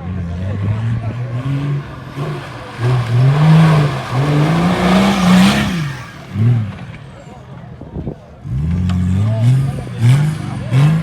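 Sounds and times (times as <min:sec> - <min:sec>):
engine revving: 0:00.0 - 0:11.0
rushing noise: 0:01.3 - 0:07.2.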